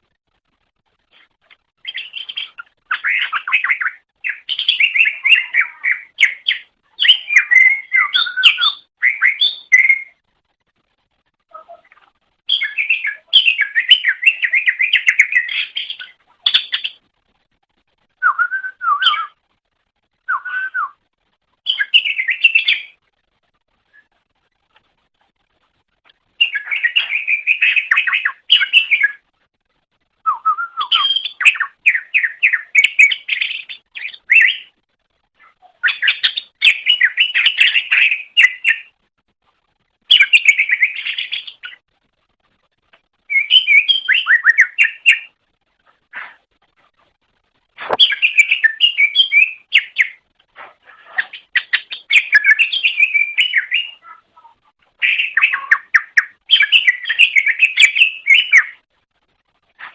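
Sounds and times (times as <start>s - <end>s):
bird chirping and warbling: 1.8s - 10.2s, 11.5s - 17.0s, 18.2s - 19.4s, 21.6s - 23.0s, 26.3s - 29.3s, 30.3s - 34.8s, 35.4s - 38.9s, 40.1s - 41.8s, 43.2s - 45.4s, 47.8s - 58.8s.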